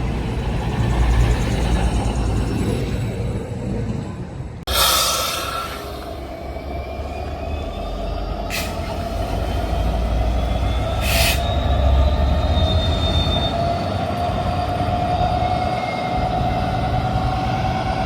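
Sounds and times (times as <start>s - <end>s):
train rumbling: 0.0s - 18.0s
short sharp hisses: 4.7s - 6.1s.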